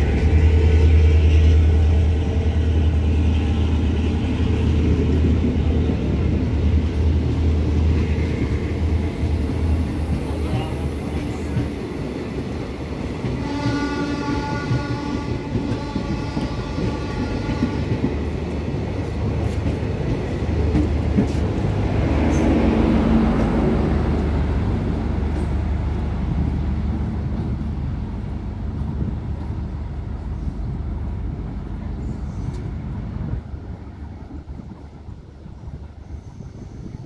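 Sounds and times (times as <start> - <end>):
train diesel engine rumbling: 0.0 - 37.0
train horn: 13.4 - 18.1.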